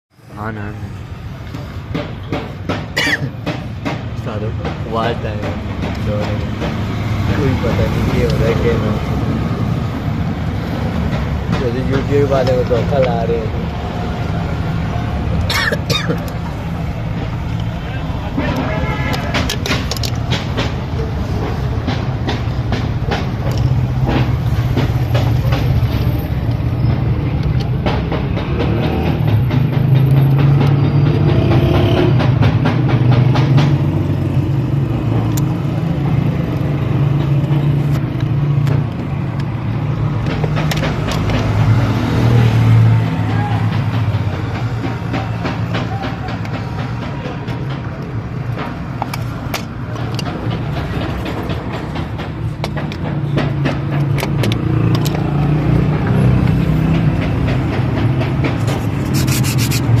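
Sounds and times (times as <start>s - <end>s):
clicks and rattles: 18.5s - 20.8s
fast even scraping: 57.8s - 60.0s.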